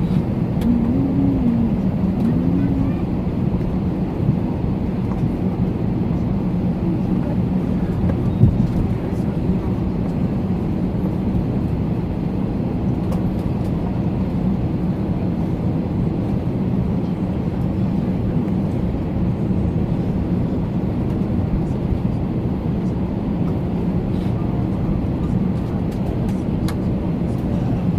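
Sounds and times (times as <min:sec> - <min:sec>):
faint steady hum: 0:00.0 - 0:05.2
airliner machinery drone: 0:00.0 - 0:27.9.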